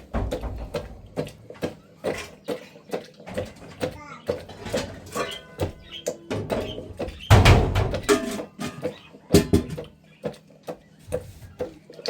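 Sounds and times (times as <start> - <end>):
heavy thud: 0.0 - 1.3.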